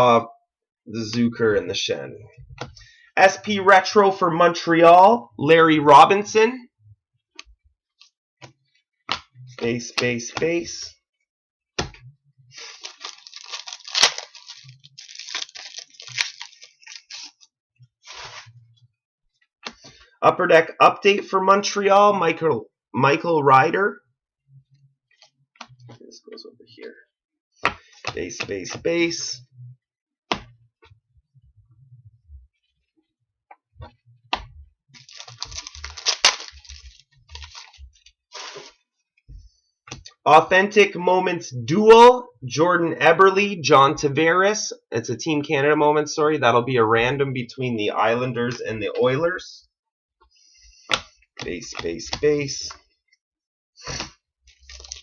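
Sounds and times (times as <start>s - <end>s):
trading cards rustling: 12.6s - 17.4s, 35.0s - 38.7s, 53.8s - 55.0s.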